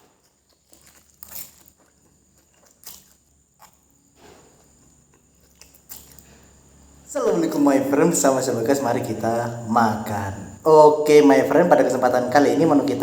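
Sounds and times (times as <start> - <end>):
faint high-pitched whine: 5.3 - 13.0.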